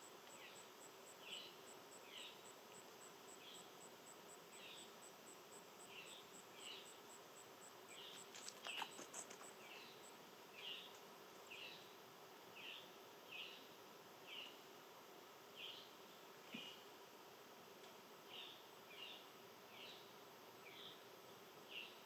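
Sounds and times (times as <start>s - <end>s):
insect high pulsing: 0.0s - 12.1s.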